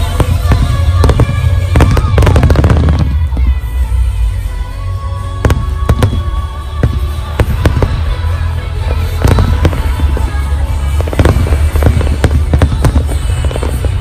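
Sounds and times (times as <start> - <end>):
fireworks bursting: 0.0 - 14.0
music playing: 0.0 - 14.0.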